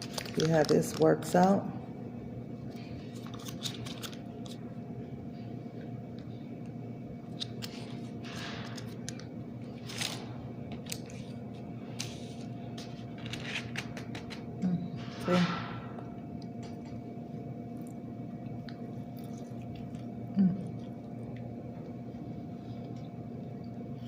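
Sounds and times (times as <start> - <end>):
packet rustling and clicking: 0.0 - 1.5, 3.2 - 4.6
steady low hum: 0.0 - 24.0.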